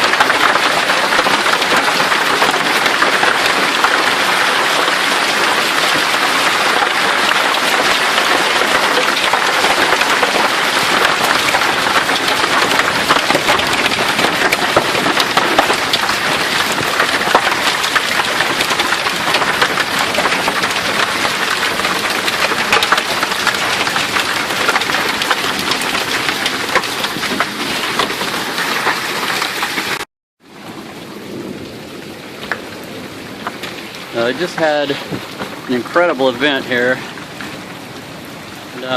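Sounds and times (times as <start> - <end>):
hailstones clattering: 0.0 - 30.0, 32.3 - 38.0
rain-like hiss: 29.3 - 38.9.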